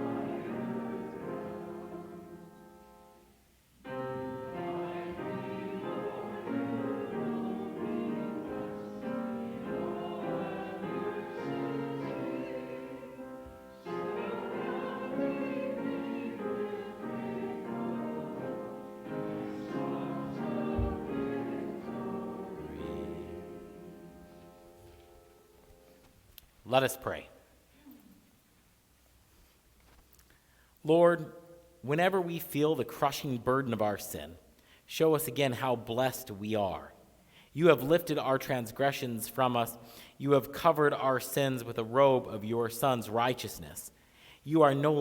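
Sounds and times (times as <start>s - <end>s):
congregation singing: 0.0s - 25.4s, 44.5s - 45.0s
instrumental accompaniment: 4.0s - 26.0s.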